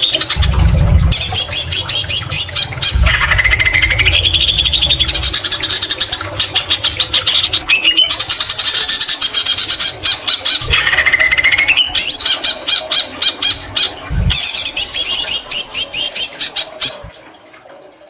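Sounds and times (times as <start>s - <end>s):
low thumps: 0.3s - 8.5s.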